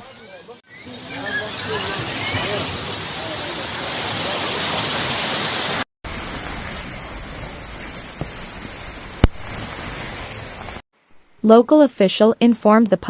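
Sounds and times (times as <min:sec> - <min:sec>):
heavy rain and hail: 0:01.8 - 0:10.8.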